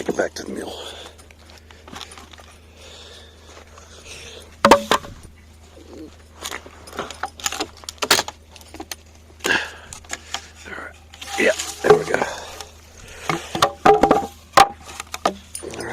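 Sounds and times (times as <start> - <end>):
board knocking with clatter: 4.7 - 5.1.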